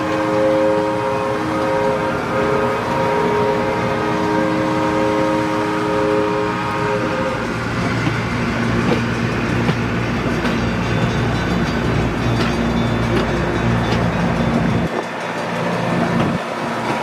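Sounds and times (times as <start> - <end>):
locomotive air horn chord: 0.0 - 7.7
train wheels rumbling on rails: 0.0 - 17.0.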